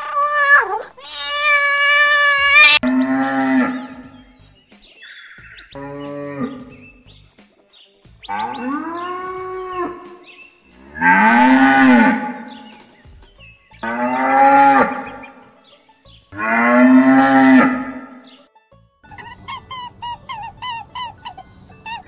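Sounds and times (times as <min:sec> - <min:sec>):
cow mooing: 0:01.2 - 0:04.2, 0:05.8 - 0:06.8, 0:08.3 - 0:10.2, 0:10.8 - 0:12.7, 0:13.8 - 0:15.3, 0:16.4 - 0:18.2.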